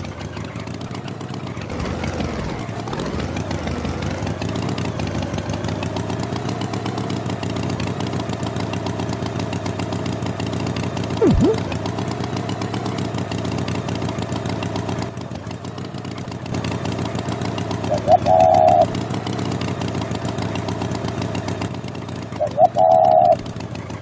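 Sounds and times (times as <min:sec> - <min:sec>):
engine running: 0:00.0 - 0:24.0
horn honks: 0:18.0 - 0:18.9.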